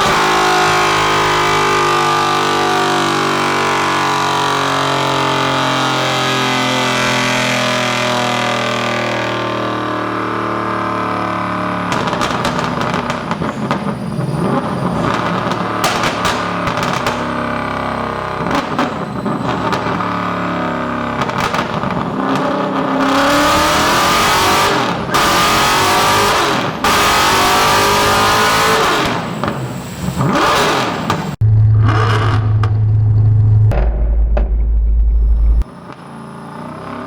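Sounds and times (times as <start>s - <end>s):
car engine revving: 0.0s - 37.0s
steady low drone: 31.4s - 35.6s.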